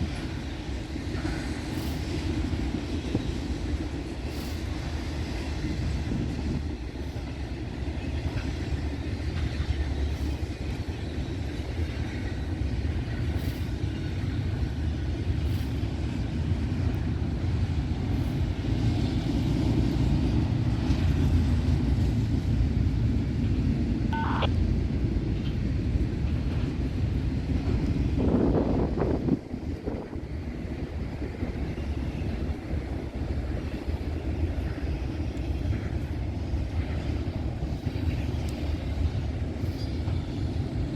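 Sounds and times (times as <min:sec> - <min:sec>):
train cars clicking over rails: 0:00.0 - 0:24.0, 0:24.7 - 0:40.9
freight train rumbling past: 0:00.0 - 0:40.9
brief high-pitched tone: 0:24.1 - 0:24.5.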